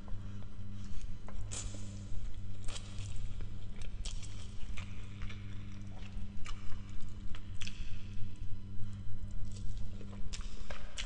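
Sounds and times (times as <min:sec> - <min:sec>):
steady low hum: 0:00.0 - 0:11.0
wet chewing sounds: 0:00.8 - 0:01.9, 0:02.6 - 0:08.0, 0:09.5 - 0:11.0.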